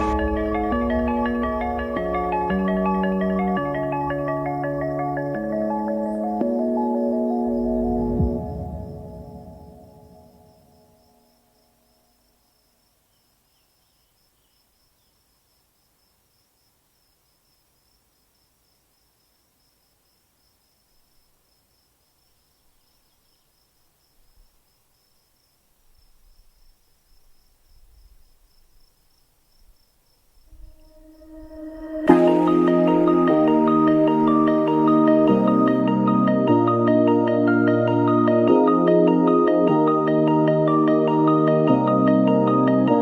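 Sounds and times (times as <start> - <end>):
faint low rumble: 0.0 - 4.6, 30.4 - 35.8
insect trill: 0.0 - 35.8.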